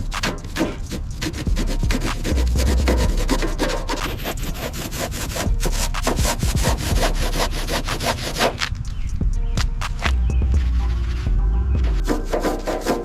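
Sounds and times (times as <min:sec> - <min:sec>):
rubbing strokes on a surface: 0:00.0 - 0:08.7, 0:11.9 - 0:13.0.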